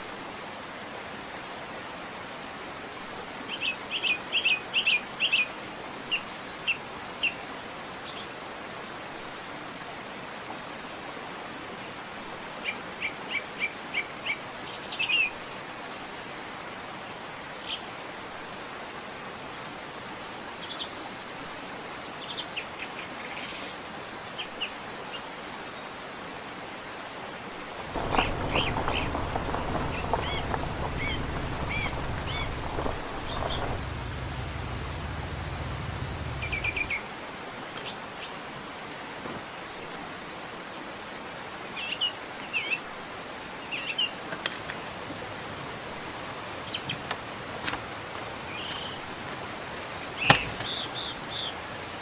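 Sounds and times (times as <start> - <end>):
stream rushing: 0.0 - 52.0
low rumbling noise: 27.8 - 37.1
small birds chirping: 27.8 - 39.2, 46.3 - 49.2, 49.9 - 52.0.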